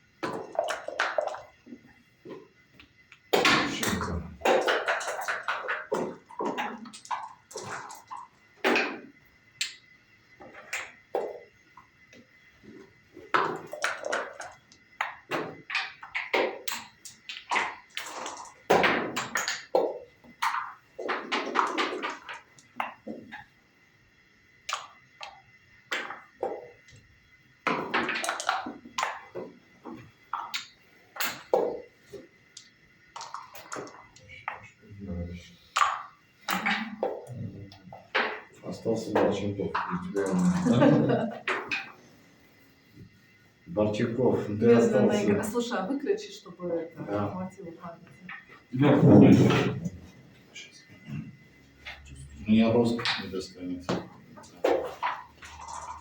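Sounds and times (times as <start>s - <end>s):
dice rattling and landing: 3.3s - 9.0s.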